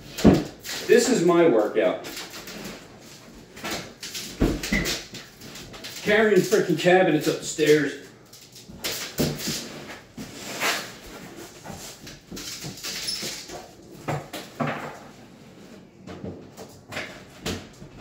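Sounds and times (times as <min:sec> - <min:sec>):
cabinet knocks and bumps: 0:14.0 - 0:15.1.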